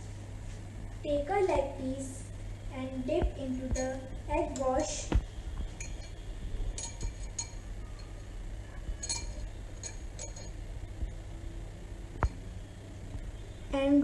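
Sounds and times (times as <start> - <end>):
light clinks against a bowl: 3.7 - 5.0, 5.8 - 8.3, 8.9 - 10.6.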